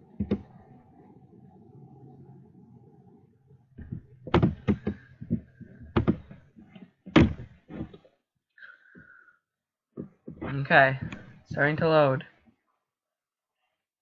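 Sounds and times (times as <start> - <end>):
sharp knocks: 3.8 - 6.4, 7.0 - 8.0.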